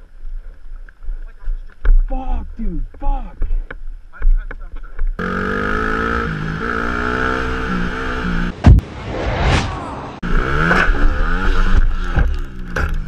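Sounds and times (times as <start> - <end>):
dirt bike engine revving: 5.2 - 8.6, 10.2 - 13.0
heavy low thud: 8.5 - 10.2.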